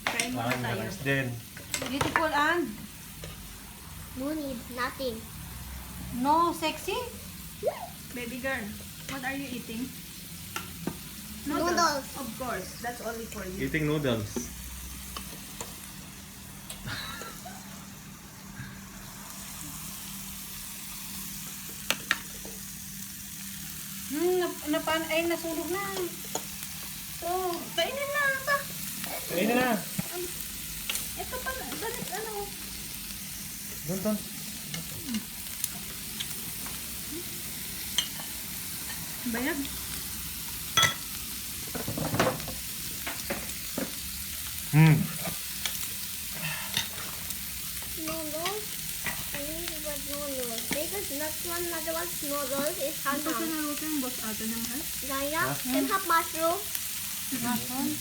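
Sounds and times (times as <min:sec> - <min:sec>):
food sizzling: 0:00.0 - 0:58.0
utensil clinking on a dish: 0:40.8 - 0:41.1.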